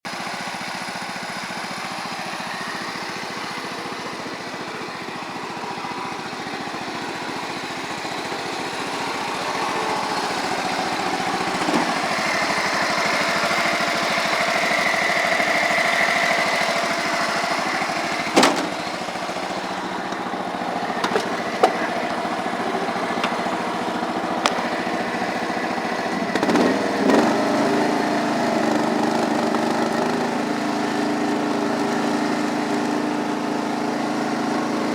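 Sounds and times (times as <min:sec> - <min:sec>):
lawn tractor engine running: 0:00.0 - 0:34.9.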